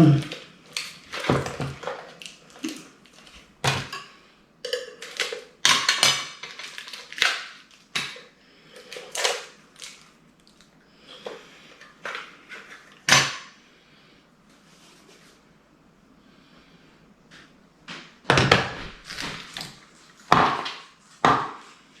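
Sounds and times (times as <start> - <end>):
plastic parts clacking and scraping: 0.2 - 4.0, 4.7 - 10.0.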